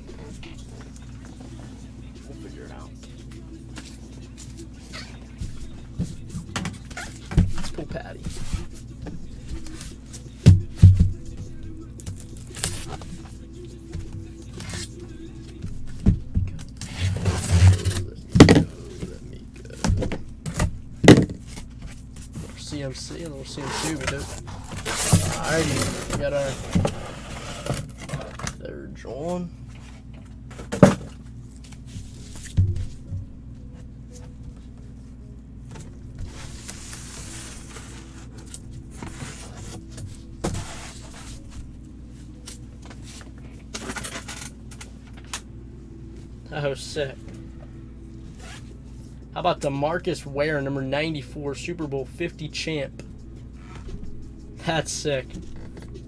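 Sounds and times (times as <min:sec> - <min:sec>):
rustling scrape: 0:16.9 - 0:19.0, 0:21.4 - 0:28.4, 0:36.2 - 0:41.7
packaging rustling: 0:23.2 - 0:28.6.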